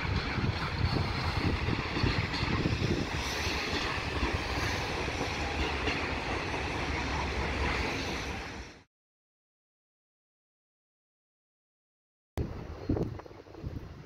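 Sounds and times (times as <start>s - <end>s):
freight train wheels on rails: 0.0s - 8.9s.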